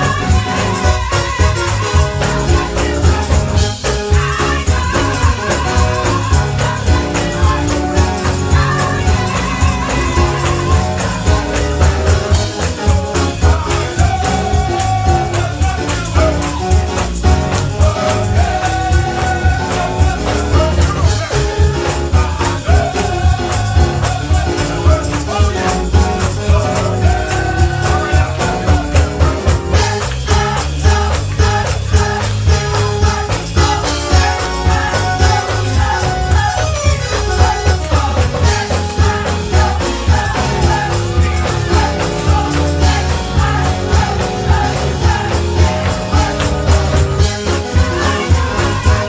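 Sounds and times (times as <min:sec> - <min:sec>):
gospel choir singing with band: 0:00.0 - 0:49.0
tambourine shaking: 0:00.0 - 0:49.0.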